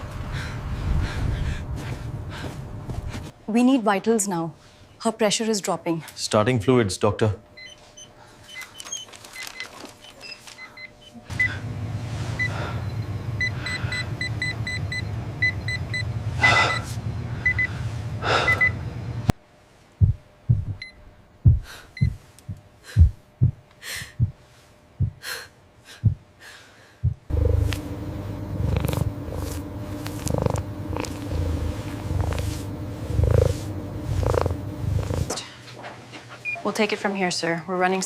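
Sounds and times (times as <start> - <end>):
steady low hum: 0.0 - 3.7, 10.6 - 36.6
patient monitor beeping: 7.6 - 11.7, 12.4 - 17.8, 18.4 - 18.9, 27.3 - 35.3
low thumps: 20.0 - 20.8, 21.4 - 24.4, 27.0 - 35.3.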